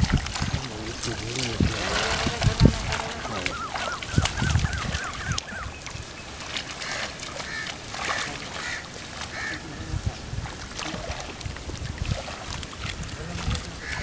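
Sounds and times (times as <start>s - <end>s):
water sloshing and splashing: 0.0s - 14.0s
bird calling: 1.7s - 9.9s, 13.7s - 14.0s.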